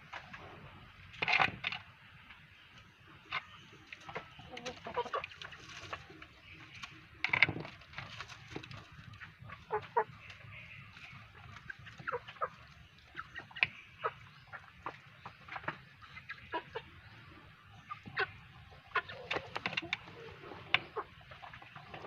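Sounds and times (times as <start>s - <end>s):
rooster clucking: 4.4s - 6.0s, 11.3s - 17.0s.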